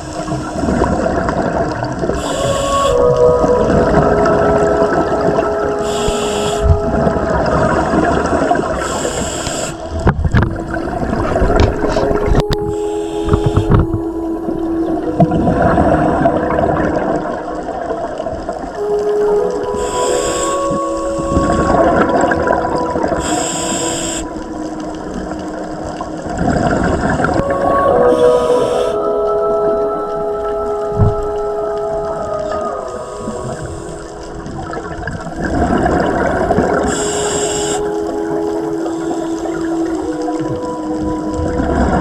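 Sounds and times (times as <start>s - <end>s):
bubbles gurgling underwater: 0.0s - 42.0s
regulator hissing inhalations: 2.2s - 3.1s, 5.8s - 6.7s, 7.8s - 10.0s, 12.7s - 13.7s, 19.8s - 20.9s, 23.2s - 24.4s, 28.0s - 29.1s, 36.8s - 38.0s.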